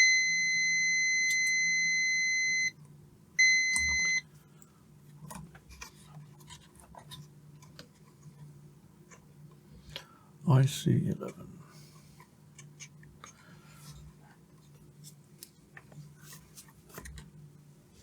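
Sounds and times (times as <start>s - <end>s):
multimeter buzzer beeping: 0.0s - 2.8s, 3.4s - 4.2s.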